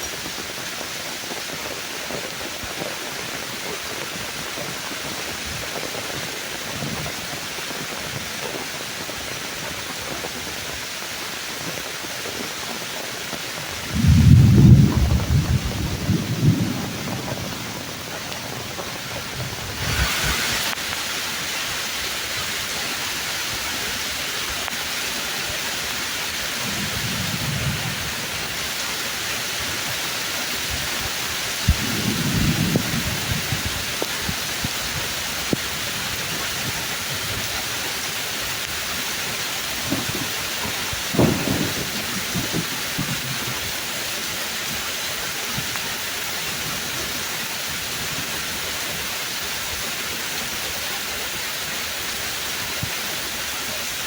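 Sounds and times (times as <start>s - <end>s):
heavy rain on tree leaves: 0.0s - 54.0s
thunder rumbling: 13.7s - 21.3s, 26.2s - 29.9s, 30.6s - 37.6s, 39.6s - 43.9s.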